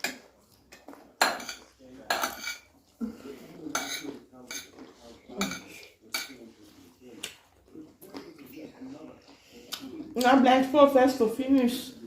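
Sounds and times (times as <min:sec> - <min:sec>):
cutlery scraping on plates: 0:00.0 - 0:02.8, 0:03.5 - 0:06.6.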